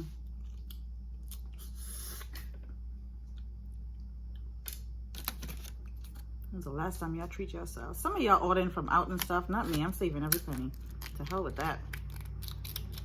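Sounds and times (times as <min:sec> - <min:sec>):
chewing and handling shellfish: 0:00.0 - 0:02.6, 0:09.2 - 0:13.0.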